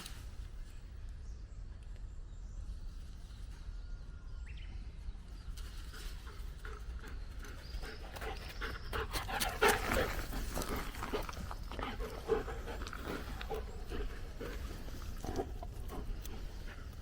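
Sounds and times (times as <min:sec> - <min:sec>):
footsteps on forest floor: 0:07.3 - 0:17.0.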